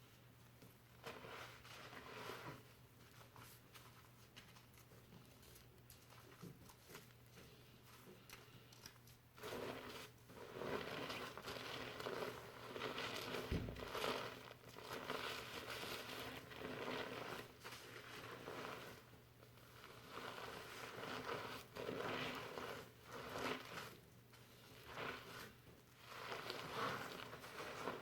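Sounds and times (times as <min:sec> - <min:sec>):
shampoo lather rustling in hair: 0:01.0 - 0:04.1, 0:09.4 - 0:19.1, 0:19.7 - 0:24.0, 0:24.7 - 0:28.0.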